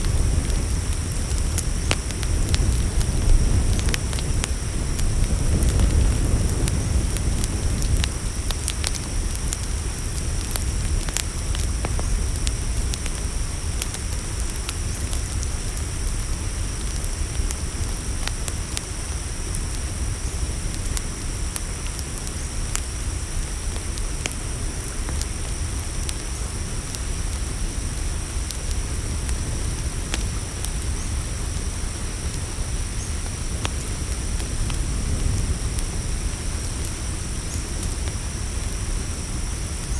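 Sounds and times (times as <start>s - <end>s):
campfire crackling: 0.0s - 39.9s
crickets chirring: 0.0s - 39.9s.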